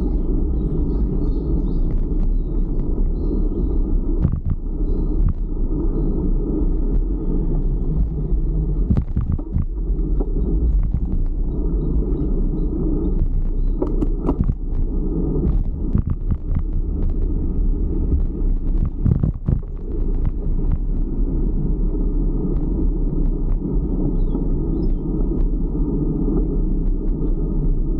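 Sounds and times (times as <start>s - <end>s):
road noise: 0.0s - 27.9s
wind buffeting microphone: 0.0s - 27.9s
bicycle knocks and rattles: 13.0s - 14.8s.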